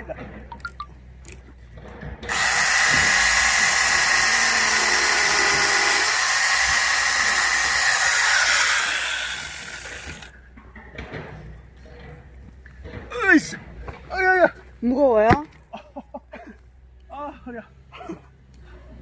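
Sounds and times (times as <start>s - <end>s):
electric chainsaw whining: 2.3s - 10.3s.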